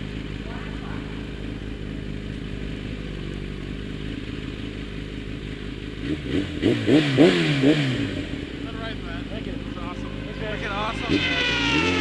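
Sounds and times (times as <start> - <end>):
motorcycle engine idling: 0.0 - 12.0
man talking: 8.6 - 11.8.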